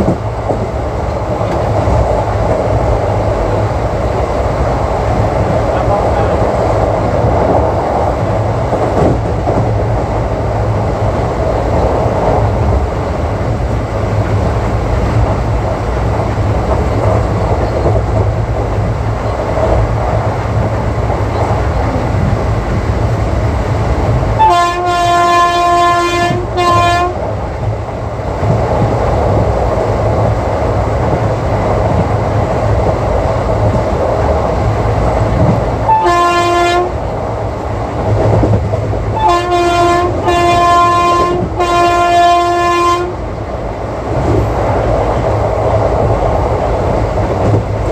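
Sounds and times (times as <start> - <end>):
train wheels rattling on track: 0.0 - 47.9
locomotive horn: 24.4 - 27.2, 35.8 - 37.0, 39.2 - 43.2.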